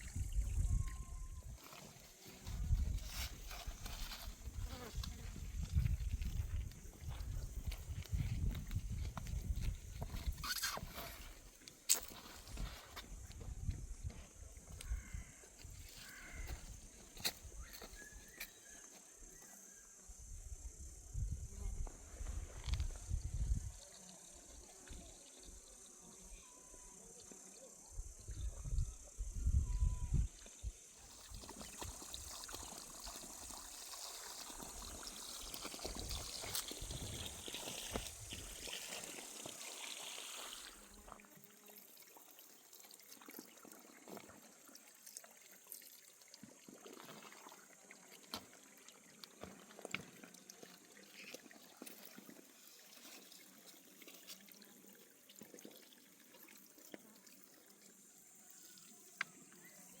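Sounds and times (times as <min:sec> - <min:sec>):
water running and trickling: 0:00.0 - 0:13.9, 0:30.5 - 1:00.0.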